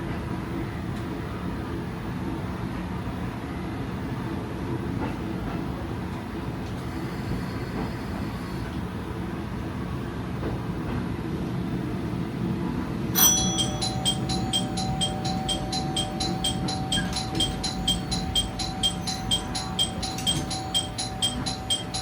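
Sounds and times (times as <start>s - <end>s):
railcar engine and wheels rumbling: 0.0s - 22.0s
ringing bell-like chime: 13.2s - 22.0s.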